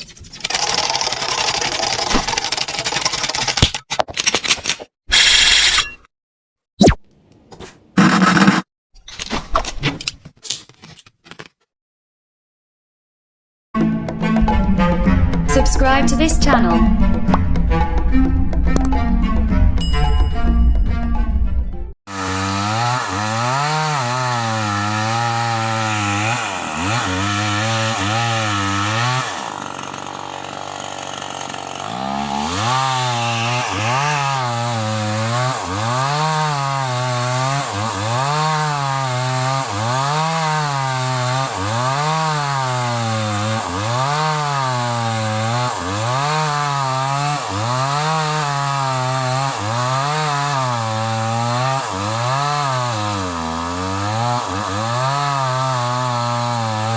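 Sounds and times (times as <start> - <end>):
chainsaw cutting a log: 0.4 - 3.4, 5.1 - 5.8, 8.0 - 8.7, 22.1 - 56.9.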